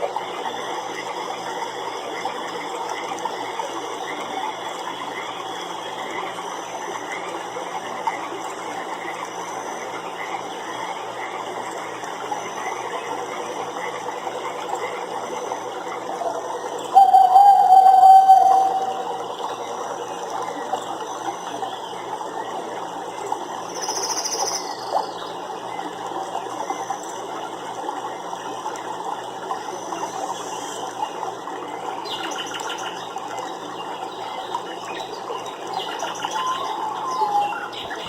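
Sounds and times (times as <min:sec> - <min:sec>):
animal calls: 0:16.9 - 0:19.3.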